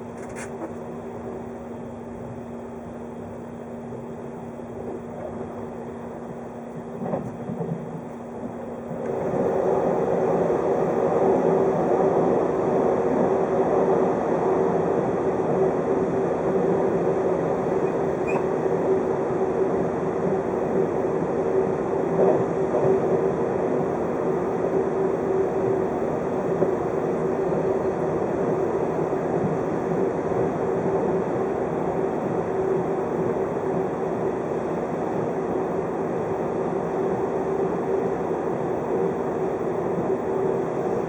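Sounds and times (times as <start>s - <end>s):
constant train hum: 0.0s - 41.0s
train wheels rumbling on rails: 6.6s - 32.0s.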